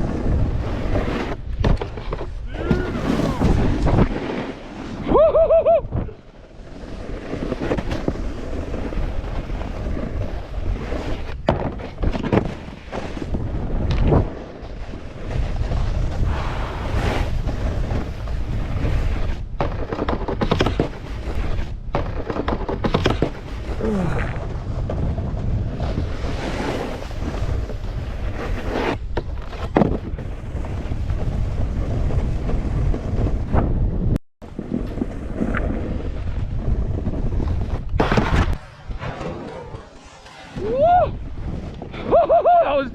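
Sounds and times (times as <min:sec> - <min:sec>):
snowboard scraping snow: 0:00.0 - 0:42.9
wind buffeting microphone: 0:29.0 - 0:42.9.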